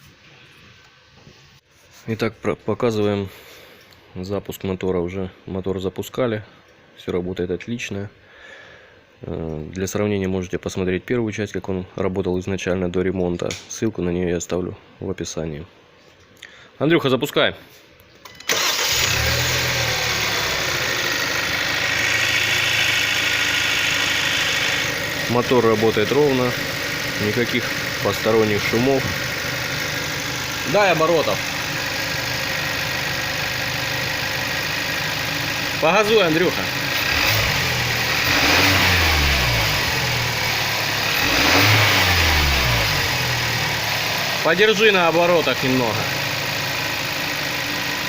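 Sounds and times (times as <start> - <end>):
car engine idling: 18.5 - 48.0.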